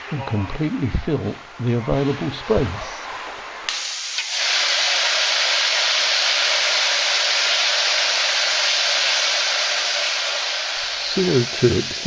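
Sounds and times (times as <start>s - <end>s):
gas discharging with loud hiss: 3.7s - 12.0s.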